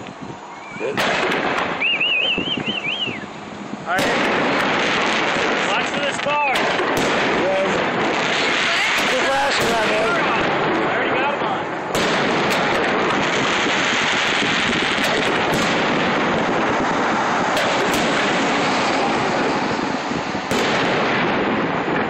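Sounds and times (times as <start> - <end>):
fireworks bursting: 0.0 - 22.0
sharp firework reports: 0.0 - 22.0.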